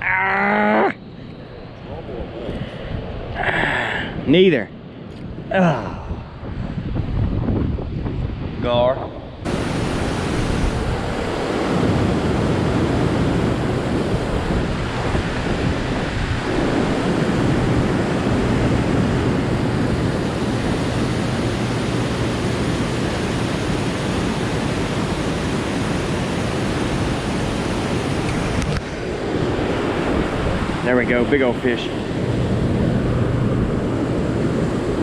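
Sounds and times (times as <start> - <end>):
wind on microphone: 1.6 - 4.3, 5.1 - 35.0
moving water: 9.5 - 29.0.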